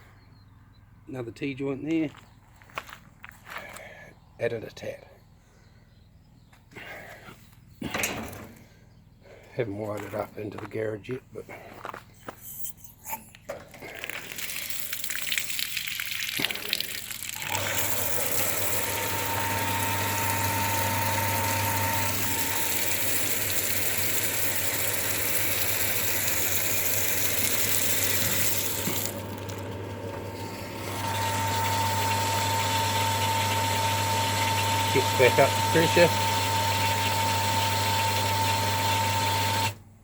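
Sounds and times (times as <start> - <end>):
electric water pump humming: 13.5 - 39.9
water running: 13.7 - 29.6, 30.8 - 39.1.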